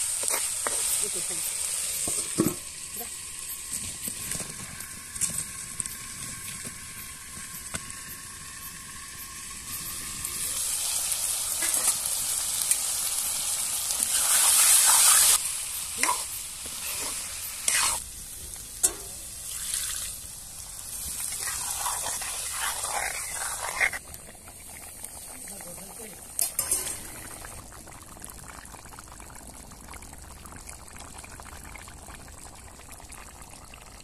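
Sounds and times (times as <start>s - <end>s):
curry sizzling in hot oil: 0.0s - 34.0s
spatula scraping a pan: 16.0s - 18.0s, 21.4s - 24.0s.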